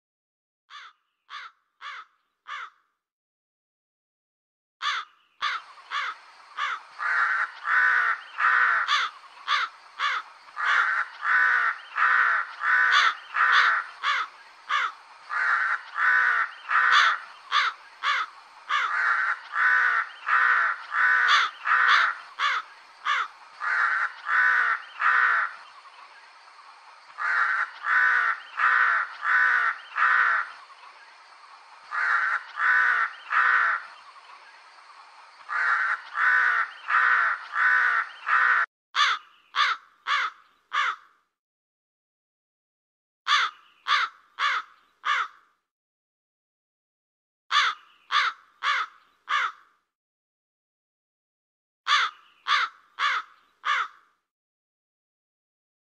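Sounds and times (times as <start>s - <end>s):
crow cawing: 0.7s - 2.9s, 4.8s - 25.6s, 27.1s - 30.6s, 31.9s - 33.9s, 35.5s - 41.2s, 43.3s - 45.5s, 47.5s - 49.7s, 51.9s - 54.2s.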